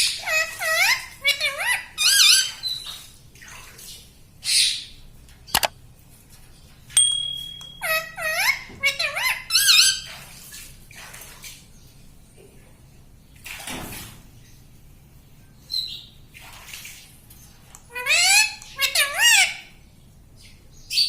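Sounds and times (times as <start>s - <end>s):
sharp click: 5.5s - 5.7s
parrot calling: 7.7s - 9.9s, 17.9s - 19.7s.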